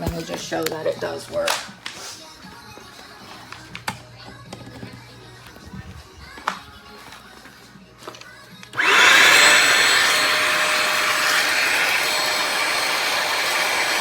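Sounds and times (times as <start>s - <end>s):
vacuum motor whining: 8.7s - 14.0s.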